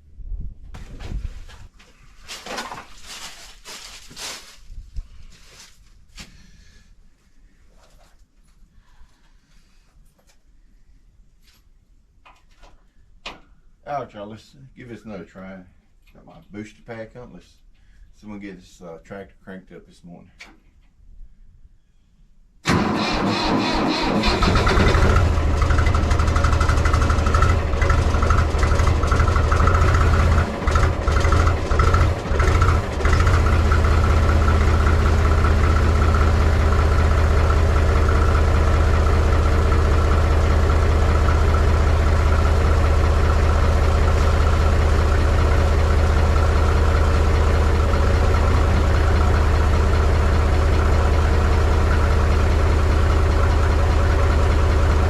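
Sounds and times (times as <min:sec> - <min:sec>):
diesel tractor engine cranking: 0:22.6 - 0:55.0
tractor engine chugging idle: 0:22.7 - 0:55.0.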